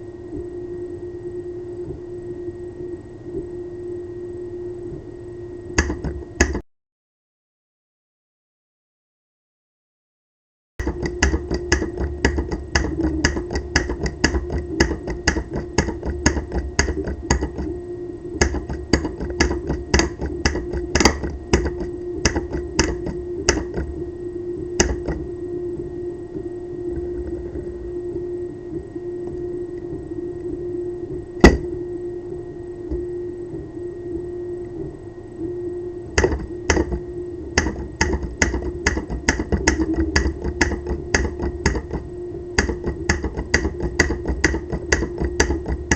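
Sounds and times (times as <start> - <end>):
steady hum: 0.0 - 6.7, 10.8 - 45.9
solenoid clicking: 18.4 - 23.9, 37.6 - 45.9.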